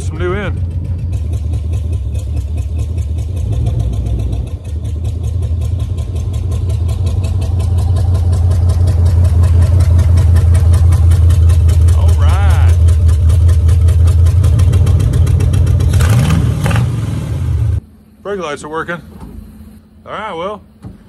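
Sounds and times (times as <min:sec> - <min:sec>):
car engine running with pulsing exhaust: 0:00.0 - 0:18.2.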